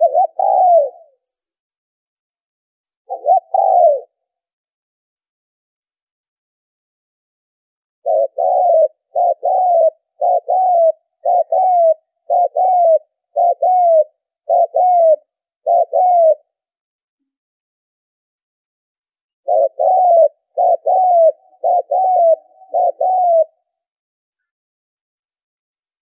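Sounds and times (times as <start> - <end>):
dove cooing: 0.0 - 1.3, 3.1 - 4.2, 8.0 - 16.6, 19.4 - 23.7.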